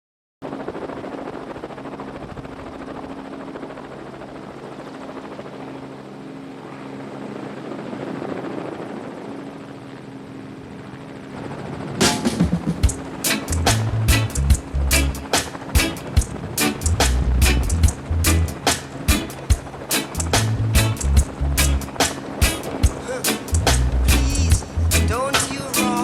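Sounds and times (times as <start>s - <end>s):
engine drone with rushing noise: 5.2s - 26.0s.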